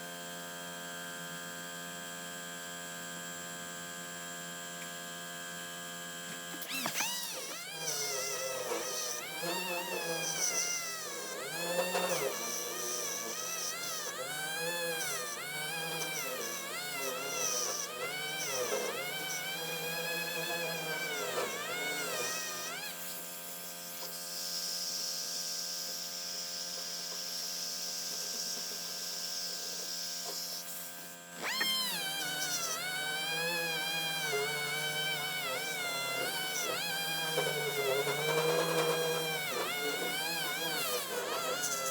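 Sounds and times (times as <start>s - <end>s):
power sander grinding: 6.2s - 24.2s, 26.6s - 41.9s.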